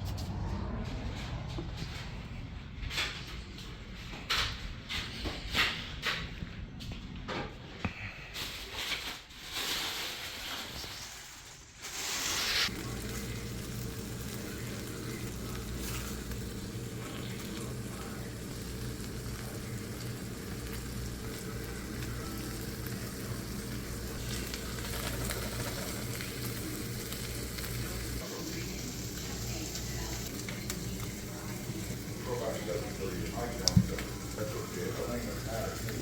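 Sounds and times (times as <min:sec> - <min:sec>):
food sizzling in frying: 0:09.6 - 0:36.0.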